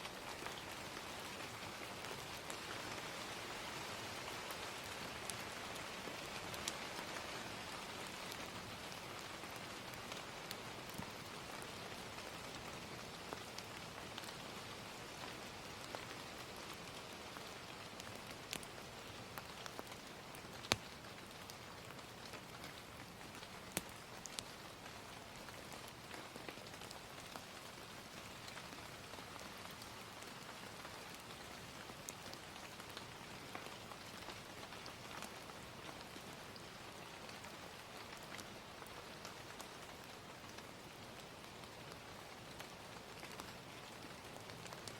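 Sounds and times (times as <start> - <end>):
gentle rain falling: 0.0 - 44.9
fire crackling and popping: 8.2 - 11.8, 15.2 - 44.9.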